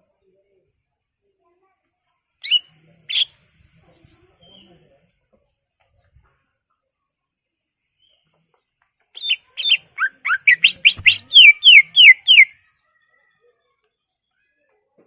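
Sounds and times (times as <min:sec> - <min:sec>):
bird singing whistled notes: 0:02.4 - 0:03.3, 0:09.2 - 0:12.6.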